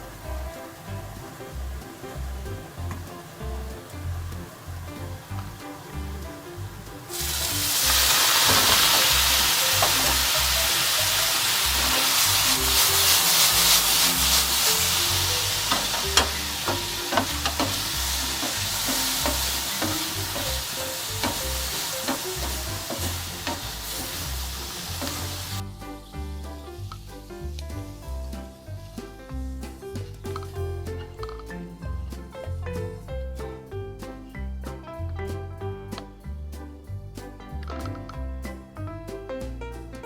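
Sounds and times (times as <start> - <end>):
food sizzling in frying pan: 0.0 - 32.8
utensil tapping in pan: 0.1 - 25.6, 26.7 - 33.0.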